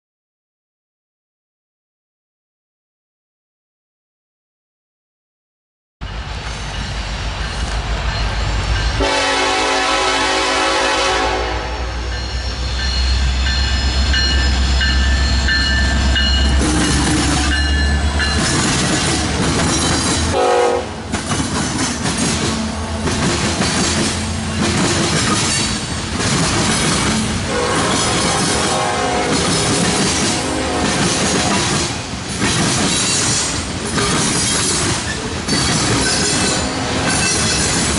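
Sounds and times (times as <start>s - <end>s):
train horn: 9.0s - 12.4s, 20.3s - 21.0s, 27.2s - 31.8s, 36.2s - 37.6s
rhythmic train wheel clatter: 12.2s - 37.9s.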